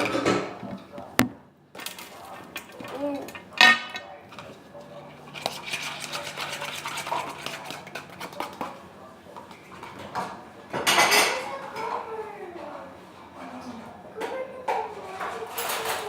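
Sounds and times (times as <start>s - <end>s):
utensil clattering: 1.8s - 8.8s, 15.3s - 16.0s
utensil scraping a bowl: 1.9s - 8.8s.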